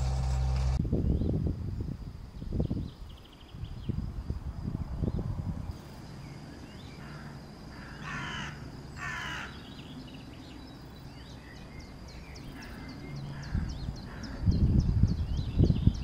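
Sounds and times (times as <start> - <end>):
small birds chirping: 5.0 - 16.0
bird harsh calls: 6.8 - 10.0, 12.2 - 14.8.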